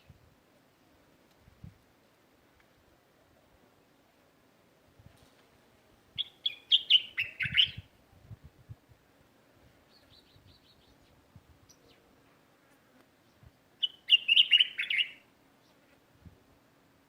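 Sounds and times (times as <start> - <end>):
small birds chirping: 6.2 - 7.9, 9.8 - 12.1, 13.1 - 16.0.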